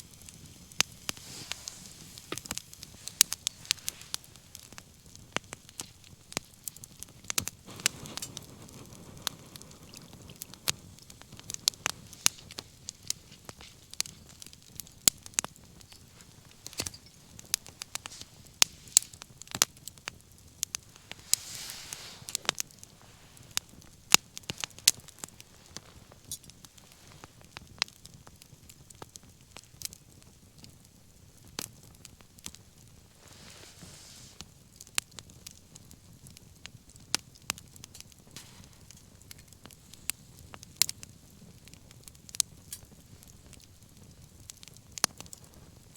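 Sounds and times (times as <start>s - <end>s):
rush of flame: 0.0s - 28.4s, 32.4s - 35.5s, 38.1s - 42.4s
bonfire crackling and popping: 0.0s - 45.9s
brief hiss: 1.0s - 4.6s, 21.0s - 23.6s, 33.2s - 34.4s, 38.4s - 39.0s.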